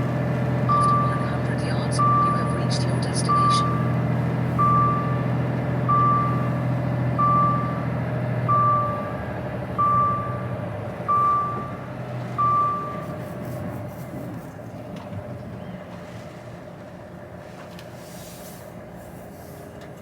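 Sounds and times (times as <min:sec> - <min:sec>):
diesel truck engine running: 0:00.0 - 0:20.0
reversing alarm beeping: 0:00.6 - 0:13.2.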